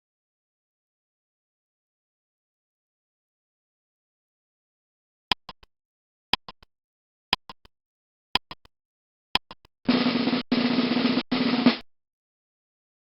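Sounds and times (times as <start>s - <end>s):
clock ticking: 5.3s - 5.7s, 6.4s - 6.7s, 7.4s - 7.7s, 8.4s - 8.7s, 9.4s - 9.8s
snare drum roll: 9.9s - 11.9s.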